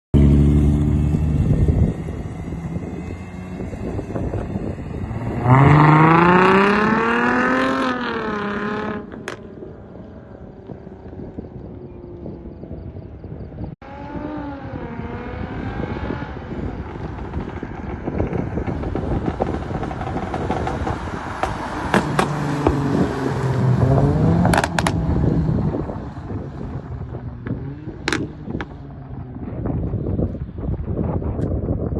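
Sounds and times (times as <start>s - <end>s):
car engine revving: 0.2s - 12.8s, 13.8s - 30.4s
exhaust crackles and pops: 16.6s - 22.9s, 24.4s - 31.6s.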